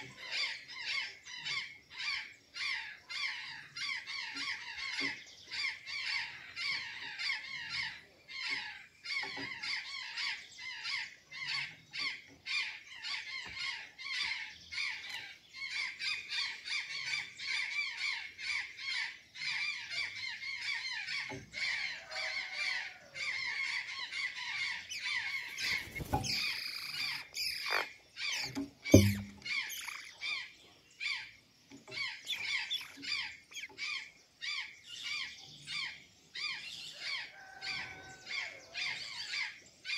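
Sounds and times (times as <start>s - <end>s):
jays squawking: 24.2s - 30.3s, 31.9s - 33.8s
sharp thump: 28.5s - 29.4s.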